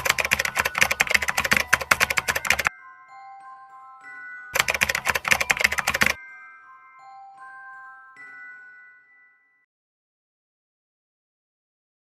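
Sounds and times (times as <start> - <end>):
keyboard typing clicks: 0.0 - 2.7, 4.6 - 6.2
quiet background music: 0.0 - 9.6
bell-like notes: 0.7 - 9.7.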